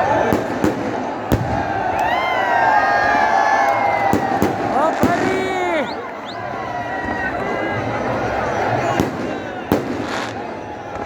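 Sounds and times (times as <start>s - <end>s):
crowd cheering and shouting: 0.0s - 11.0s
firework bang: 0.2s - 1.9s, 4.0s - 5.6s, 8.9s - 11.0s.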